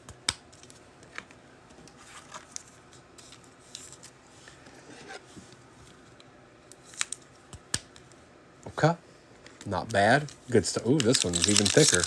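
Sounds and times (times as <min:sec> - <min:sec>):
trading cards and wrappers rustling: 0:09.6 - 0:12.0.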